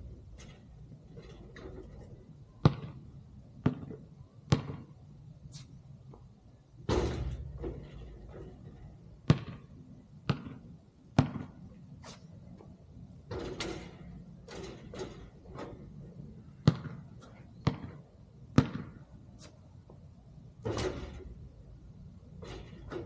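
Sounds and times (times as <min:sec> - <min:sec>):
basketball bouncing on court: 0:02.6 - 0:05.0, 0:06.9 - 0:11.7, 0:16.5 - 0:19.1
rattling impacts: 0:06.8 - 0:09.2, 0:13.2 - 0:16.4, 0:20.6 - 0:23.0.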